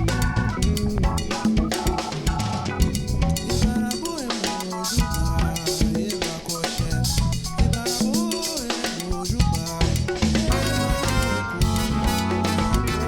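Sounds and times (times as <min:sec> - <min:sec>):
bass: 0:00.0 - 0:04.0, 0:04.9 - 0:08.3, 0:09.1 - 0:13.0
drum kit beat: 0:00.0 - 0:13.0
pitch-bending melody line: 0:10.5 - 0:13.0.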